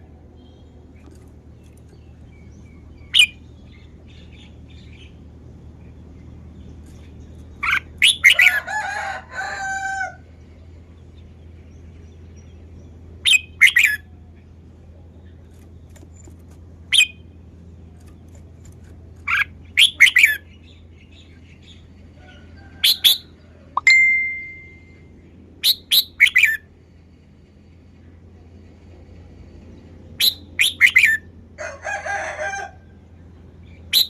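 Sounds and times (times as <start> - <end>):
steady low hum: 0.0 - 30.6
bird singing whistled notes: 25.6 - 26.6, 30.2 - 31.2.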